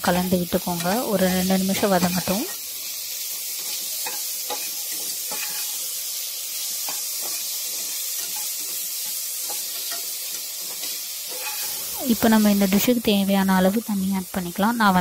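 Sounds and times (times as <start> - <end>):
vegetables sizzling in oil: 0.0 - 15.0
steel spoon scraping pot: 9.4 - 11.9.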